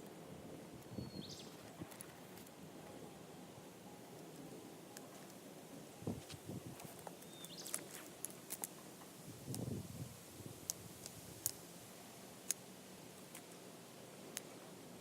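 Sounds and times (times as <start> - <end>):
campfire crackling: 4.0 - 14.6.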